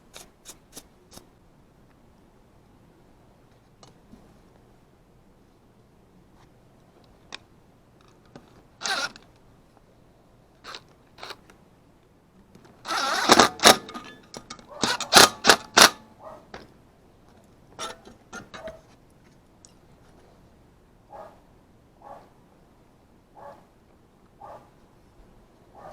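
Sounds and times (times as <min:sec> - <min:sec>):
handling clicks and knocks: 0:12.6 - 0:16.0, 0:17.8 - 0:18.9.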